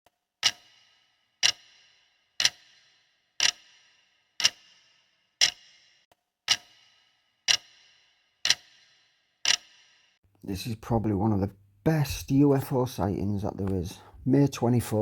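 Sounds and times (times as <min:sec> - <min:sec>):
sharp ticking: 0:00.4 - 0:10.2.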